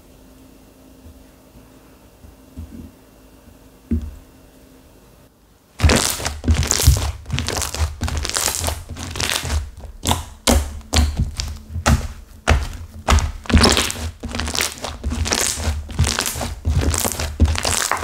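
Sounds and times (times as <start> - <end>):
hands squeezing crunchy slime: 5.8 - 18.0.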